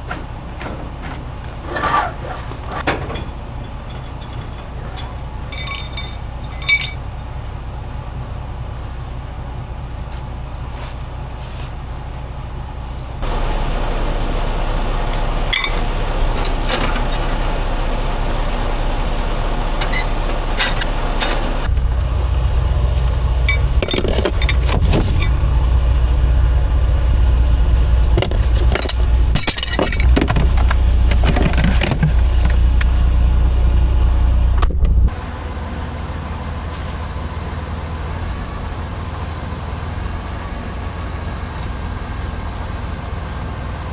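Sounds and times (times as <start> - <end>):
engine running steadily: 0.0 - 43.9
metallic clinks and knocks: 0.1 - 7.1, 15.1 - 17.2, 23.4 - 25.4, 28.2 - 32.6.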